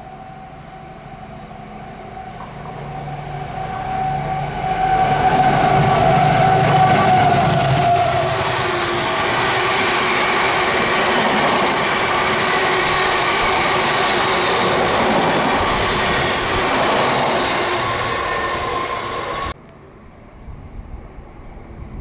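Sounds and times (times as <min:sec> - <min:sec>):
faint high squeal: 0:00.0 - 0:08.4, 0:17.6 - 0:19.6
freight wagons rolling past: 0:01.9 - 0:19.5.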